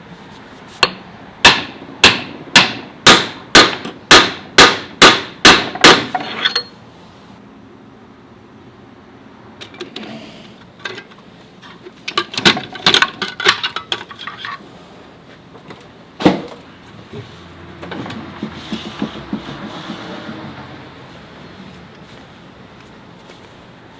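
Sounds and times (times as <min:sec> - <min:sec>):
metal parts clinking: 0:10.8 - 0:14.6.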